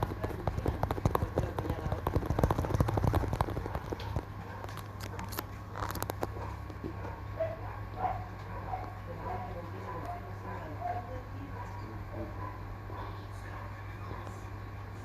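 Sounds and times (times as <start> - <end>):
fingers tapping and clicking: 0.0 - 4.3
low steady hum: 0.0 - 15.0.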